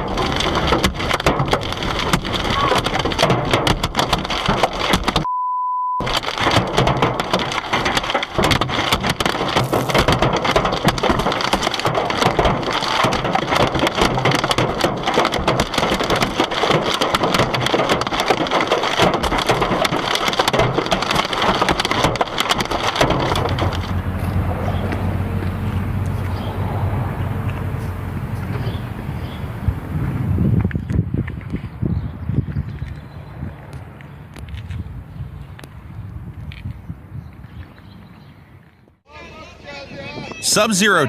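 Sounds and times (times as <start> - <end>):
hail pelting a car: 0.0 - 5.3, 6.0 - 26.2
steady bleep tone: 5.3 - 6.0.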